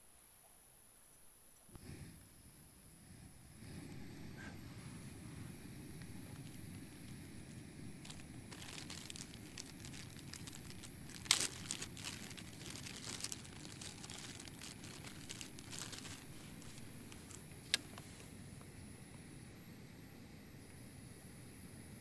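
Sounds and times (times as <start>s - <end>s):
plastic wrapper crinkling: 8.0s - 18.3s.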